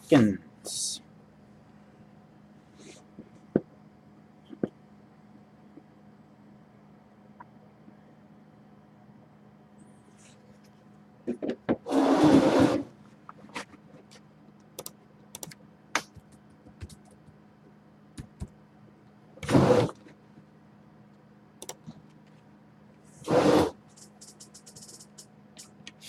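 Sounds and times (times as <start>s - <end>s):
trading cards clicking and tapping: 15.4s - 17.4s.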